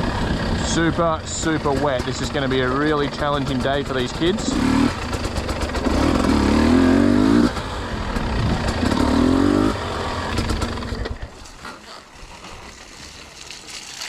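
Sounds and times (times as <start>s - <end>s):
dirt bike engine revving: 0.0s - 11.3s.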